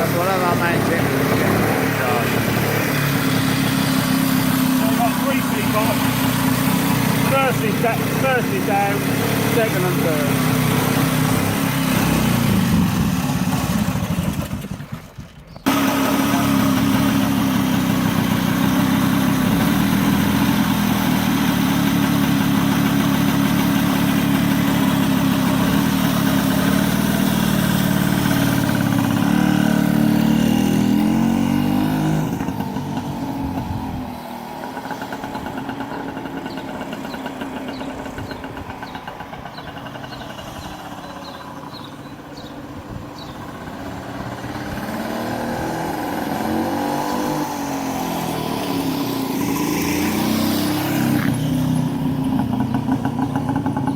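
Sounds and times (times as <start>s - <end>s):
motorcycle engine running hard: 0.0s - 53.9s.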